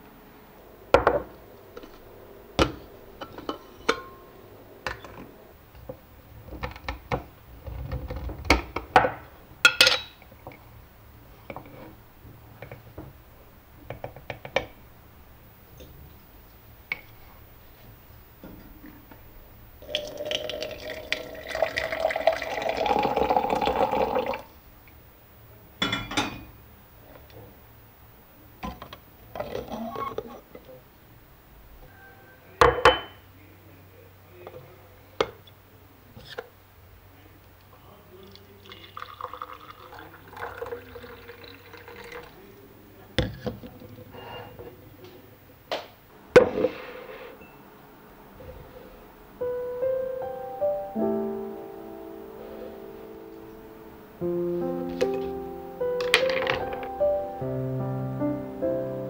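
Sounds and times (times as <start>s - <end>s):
liquid pouring into a glass: 19.8s - 24.5s, 38.2s - 42.5s.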